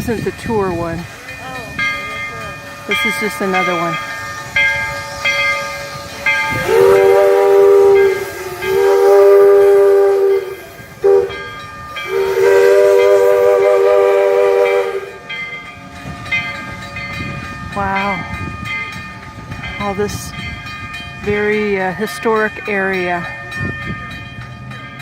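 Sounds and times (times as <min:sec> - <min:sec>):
steady steam hiss: 0:00.0 - 0:23.0
steam locomotive whistle blasts: 0:02.8 - 0:15.4.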